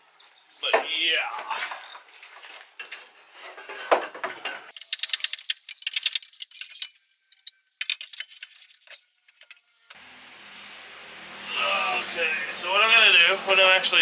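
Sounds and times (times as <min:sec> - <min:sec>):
metal parts clinking and rattling: 0:04.7 - 0:10.0.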